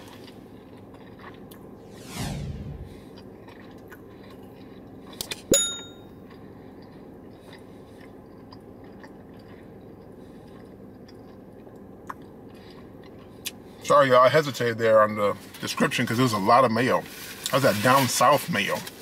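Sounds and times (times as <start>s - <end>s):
person chewing crispy food: 0.0s - 1.7s, 3.1s - 5.5s, 6.2s - 13.8s
low background hum: 0.0s - 19.0s
short bright ding: 5.5s - 6.1s.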